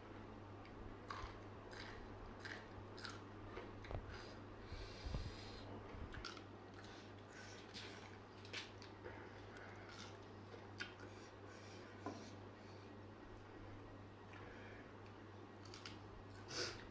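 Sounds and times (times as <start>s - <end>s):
steady low hum: 0.0s - 16.9s
person chewing crunchy food: 0.6s - 4.4s, 6.1s - 11.3s, 15.6s - 16.5s.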